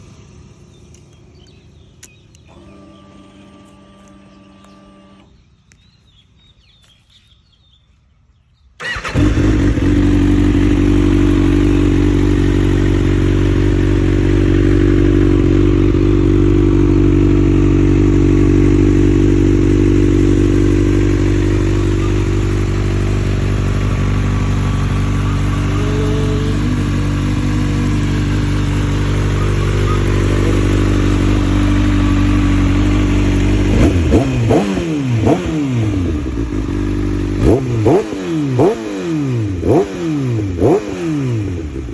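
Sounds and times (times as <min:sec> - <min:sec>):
motorcycle engine starting and idling: 0:00.0 - 0:07.8, 0:08.4 - 0:41.9
motorcycle throttle blips: 0:08.8 - 0:41.9.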